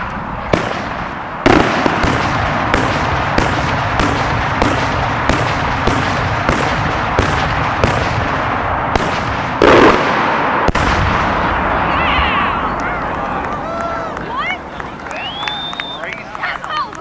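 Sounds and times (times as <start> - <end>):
continuous dense noise: 0.0 - 17.0
firework shell bangs: 0.6 - 11.7.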